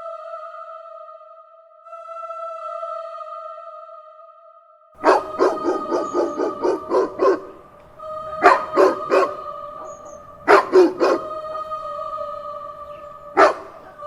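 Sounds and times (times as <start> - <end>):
dog barking: 5.0 - 7.6, 8.4 - 11.4, 13.3 - 14.0
droning background music: 5.0 - 14.0.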